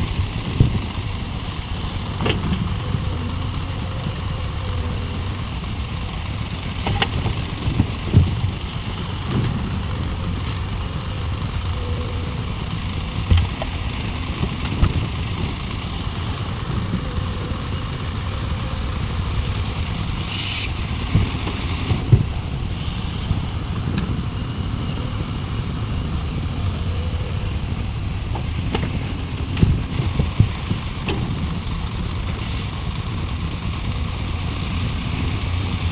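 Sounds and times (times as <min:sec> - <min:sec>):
heavy diesel machinery running: 0:00.0 - 0:35.9
air hisses: 0:20.2 - 0:20.8, 0:32.4 - 0:32.8.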